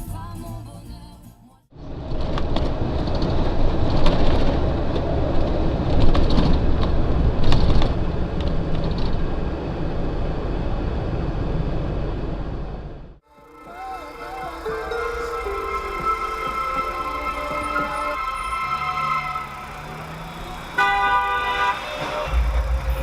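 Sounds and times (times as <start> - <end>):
vehicle road and engine rumble: 0.0 - 23.0.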